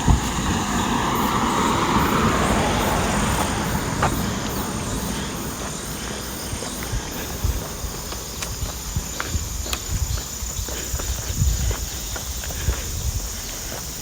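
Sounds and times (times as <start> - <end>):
vehicle passing by: 0.0 - 9.7.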